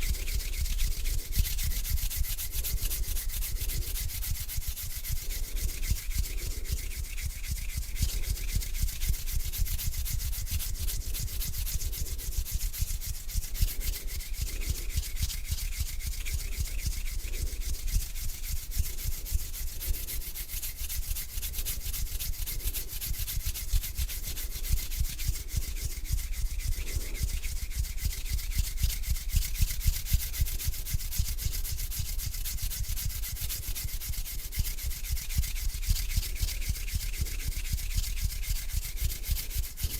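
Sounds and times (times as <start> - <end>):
hands rubbing together: 0.0 - 39.9.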